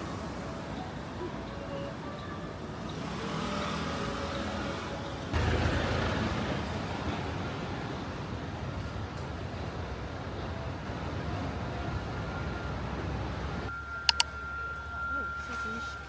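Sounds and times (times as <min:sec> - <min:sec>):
traffic hum: 0:00.0 - 0:16.0.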